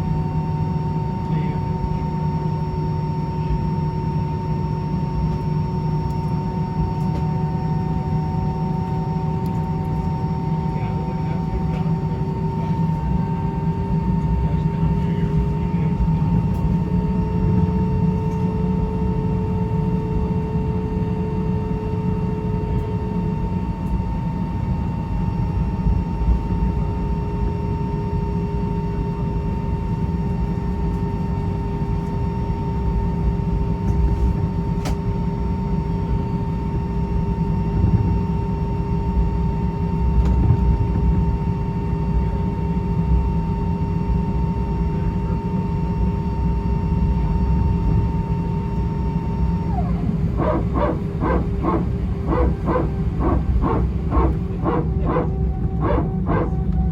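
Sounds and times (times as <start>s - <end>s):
aircraft cabin engine rumble: 0.0s - 56.9s
steady tones: 49.7s - 56.6s.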